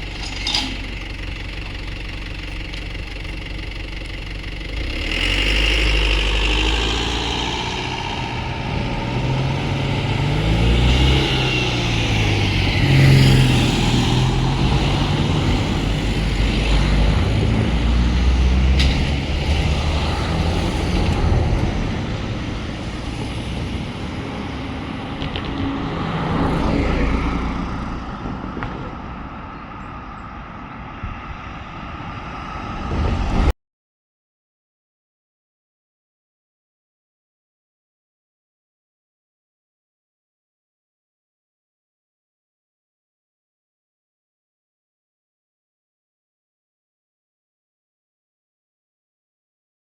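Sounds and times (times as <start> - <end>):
vehicle engines passing: 0.0 - 33.5.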